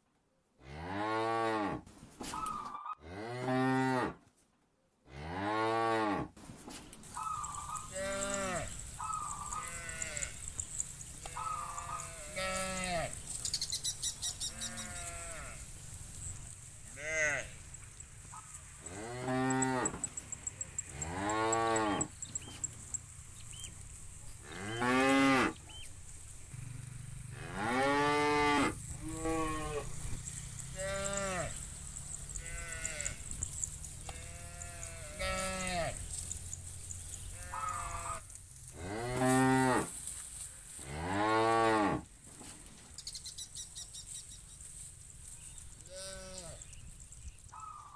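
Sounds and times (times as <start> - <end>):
cattle mooing: 7.4 - 10.6, 11.2 - 13.2, 27.3 - 30.2, 30.8 - 31.7, 32.3 - 33.3, 34.1 - 36.0.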